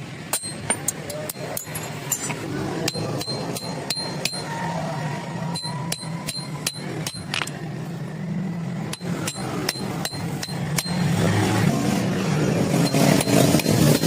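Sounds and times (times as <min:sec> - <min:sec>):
hammer striking iron: 0:00.2 - 0:04.6, 0:05.5 - 0:07.6, 0:08.8 - 0:11.2, 0:12.8 - 0:14.0.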